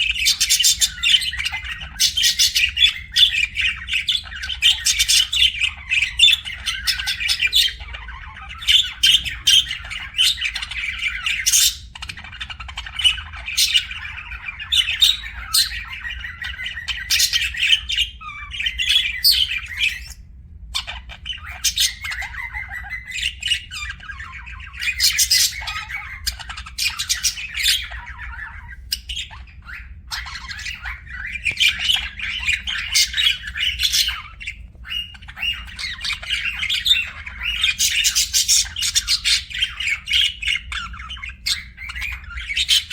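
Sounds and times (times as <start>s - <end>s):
budgerigars chattering: 0.0s - 42.9s
budgerigar squawks: 20.8s - 42.9s.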